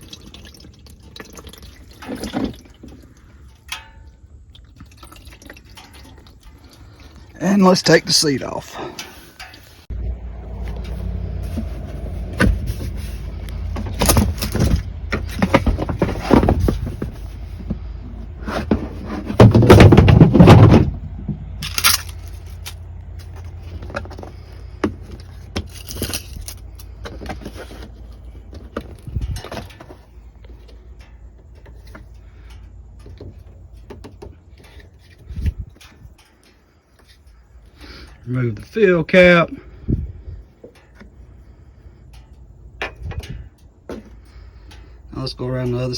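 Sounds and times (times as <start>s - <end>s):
low steady rumble: 0.0s - 45.9s
seat clunking and rattling: 10.6s - 30.6s.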